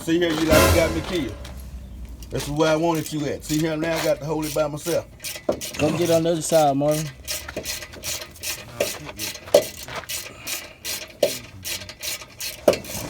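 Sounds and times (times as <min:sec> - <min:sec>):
metal knocks: 0:00.4 - 0:02.0
ratchet wrench clicking: 0:02.4 - 0:13.0.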